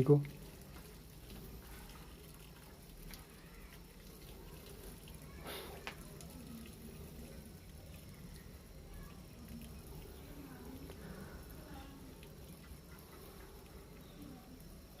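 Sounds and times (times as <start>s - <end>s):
washing machine water sounds: 0.0s - 15.0s.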